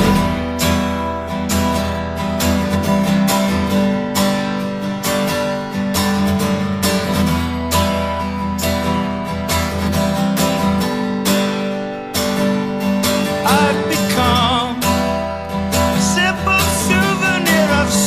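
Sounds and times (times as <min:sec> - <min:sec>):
guitar strumming song: 0:00.0 - 0:18.0.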